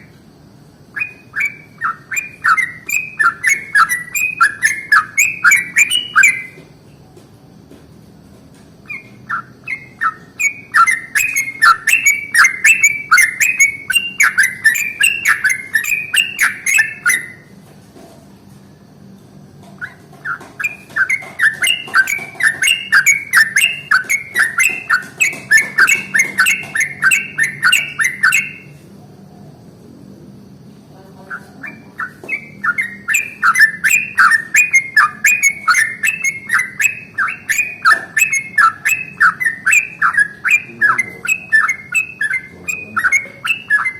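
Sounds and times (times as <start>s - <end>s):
bulbul singing rolling song: 0.0s - 7.0s, 8.0s - 17.6s, 18.6s - 43.9s.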